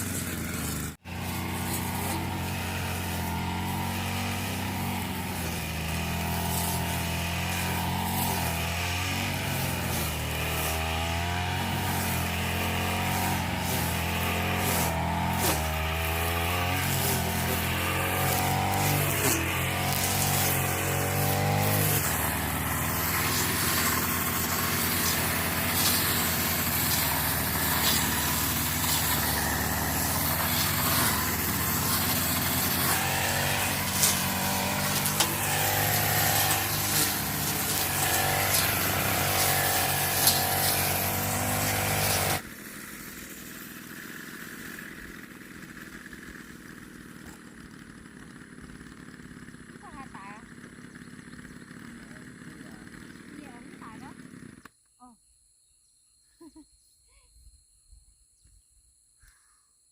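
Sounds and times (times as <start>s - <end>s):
motor engine running under load: 0.0s - 54.7s.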